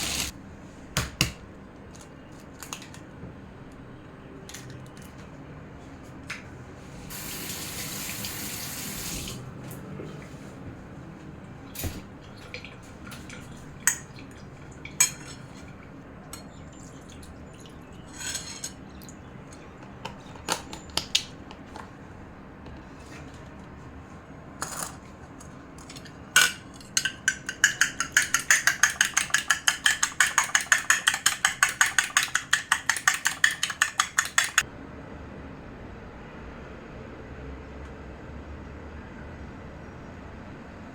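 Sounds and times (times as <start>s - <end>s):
kitchen tap running: 0.0s - 0.3s, 7.1s - 9.4s
dishes and utensils clinking: 26.4s - 34.6s
utensil beating against a bowl: 27.0s - 34.6s.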